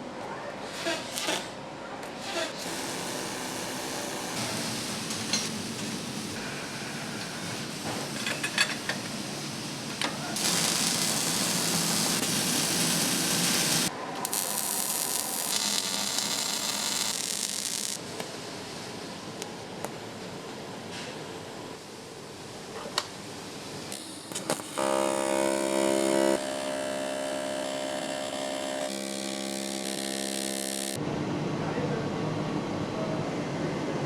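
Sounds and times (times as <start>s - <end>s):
steady machine hiss: 2.6s - 19.0s.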